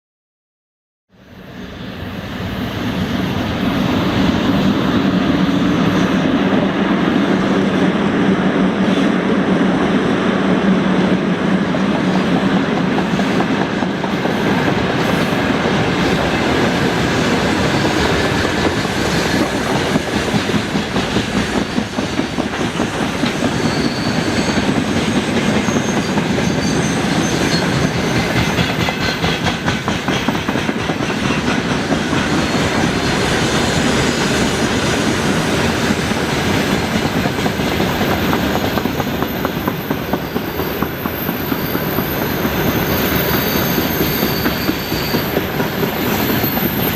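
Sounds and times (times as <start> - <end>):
train wheels clattering over rail joints: 17.6 - 33.2, 35.6 - 46.9
high wheel squeal: 23.3 - 29.2, 38.2 - 46.9.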